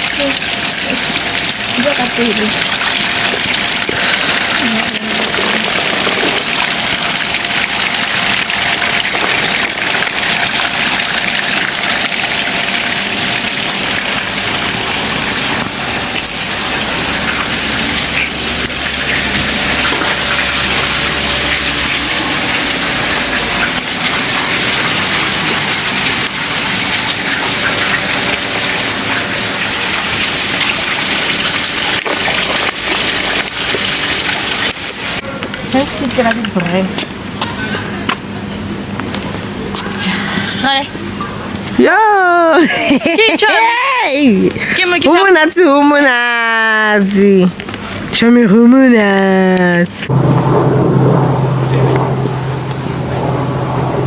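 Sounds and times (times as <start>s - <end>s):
water rushing: 0.0s - 40.0s, 40.6s - 54.0s
faint low rumble: 50.1s - 54.0s.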